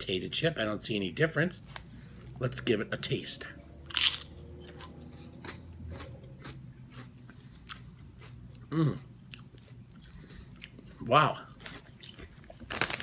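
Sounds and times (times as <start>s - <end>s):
potato chip crunching: 3.9s - 8.6s, 9.3s - 13.0s
person humming: 8.7s - 9.1s.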